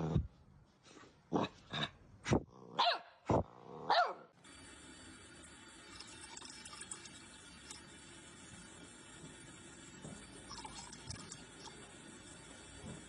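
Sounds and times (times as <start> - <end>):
dog barking: 2.7 - 4.3.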